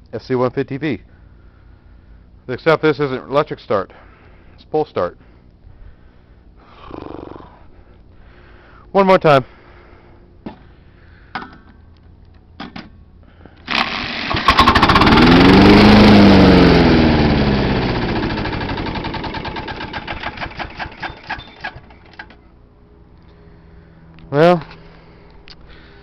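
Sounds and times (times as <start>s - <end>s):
mower engine starting and running: 13.6s - 22.4s.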